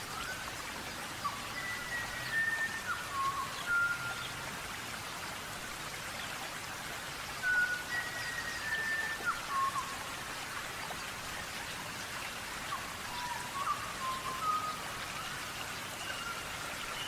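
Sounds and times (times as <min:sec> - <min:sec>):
whistled bird calls: 0:01.2 - 0:04.4, 0:07.4 - 0:10.0, 0:12.7 - 0:17.0.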